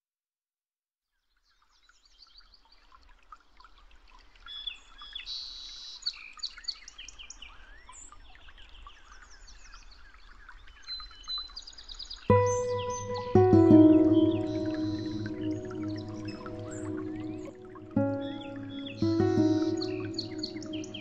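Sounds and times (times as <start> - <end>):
birds singing and chirping: 12.3 - 21.0.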